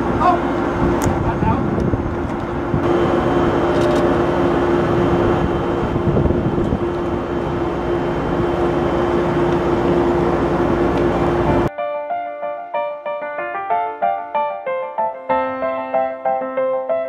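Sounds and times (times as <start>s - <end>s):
machinery humming and rumbling: 0.0s - 11.7s.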